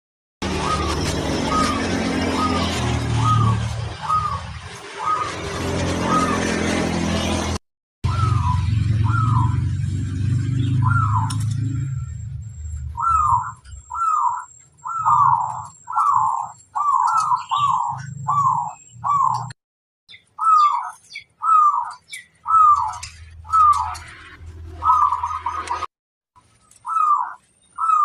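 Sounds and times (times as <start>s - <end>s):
dove cooing: 0.5s - 6.5s, 10.8s - 11.6s, 13.0s - 19.5s
small birds chirping: 0.5s - 6.6s, 8.1s - 25.9s, 26.6s - 28.0s.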